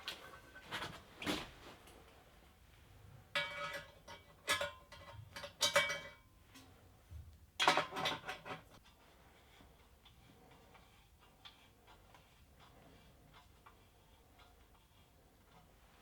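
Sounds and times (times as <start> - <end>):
metal pipes clinking and clanking: 3.3 - 6.8, 7.6 - 8.8.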